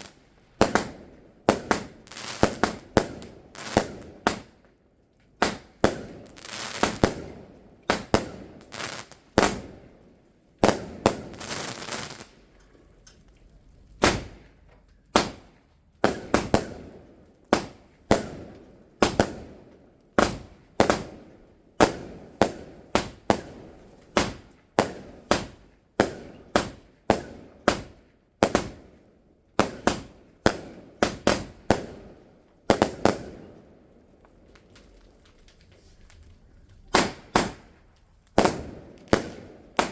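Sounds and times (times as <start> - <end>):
fireworks hissing crackle: 0.0 - 4.7, 5.4 - 9.8, 10.6 - 16.7, 34.0 - 39.9
fireworks banging: 0.0 - 10.0, 10.6 - 12.6, 13.8 - 28.9, 29.6 - 39.9.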